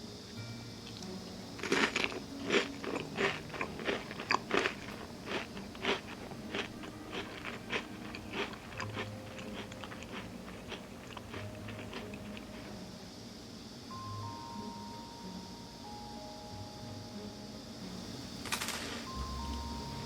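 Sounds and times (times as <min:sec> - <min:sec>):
person chewing crunchy food: 0:00.9 - 0:12.8.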